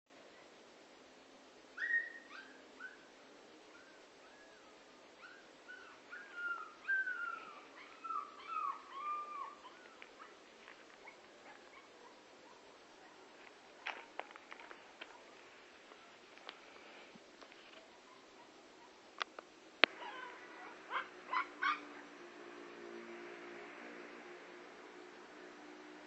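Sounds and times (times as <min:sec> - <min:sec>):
dog whimpering: 0:03.8 - 0:10.3.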